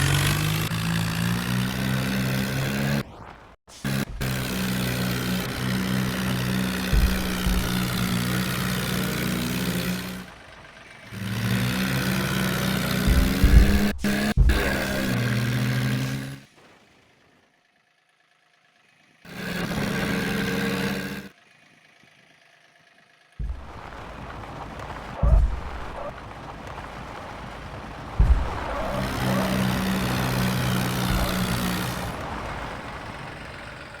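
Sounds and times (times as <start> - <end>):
tractor engine running: 0.0 - 3.0, 3.7 - 34.0
heavy thumps: 3.8 - 10.3, 11.2 - 16.4, 23.4 - 24.0, 25.2 - 26.0, 28.2 - 32.2.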